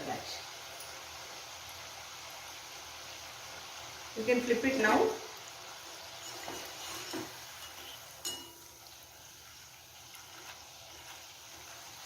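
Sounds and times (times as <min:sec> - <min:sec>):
oil sizzling while deep-frying: 0:00.0 - 0:12.0
metal utensil clinking on pan: 0:06.2 - 0:08.7.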